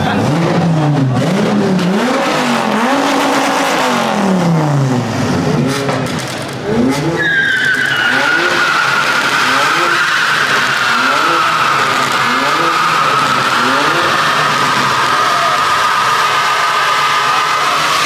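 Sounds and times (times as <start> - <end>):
car engine revving: 0.0 - 18.0
tire squeal: 6.8 - 18.0.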